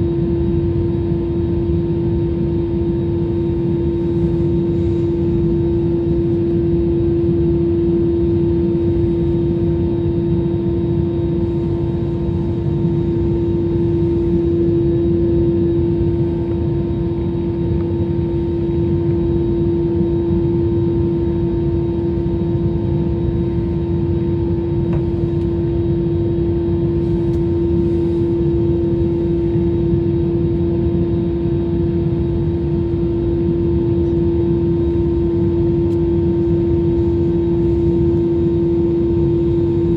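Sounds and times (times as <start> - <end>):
jet engine drone in cabin: 0.0 - 39.9.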